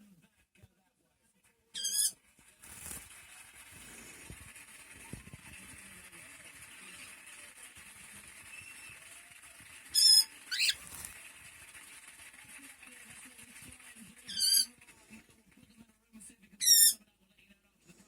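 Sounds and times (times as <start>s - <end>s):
cockatiel calling: 1.8s - 2.2s, 9.9s - 11.0s, 14.3s - 14.7s, 16.6s - 17.0s.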